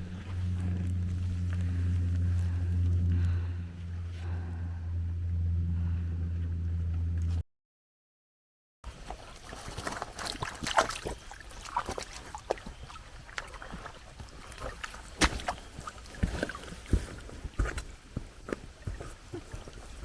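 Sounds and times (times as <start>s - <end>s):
footsteps on wet ground: 0.0s - 3.9s, 8.9s - 20.0s.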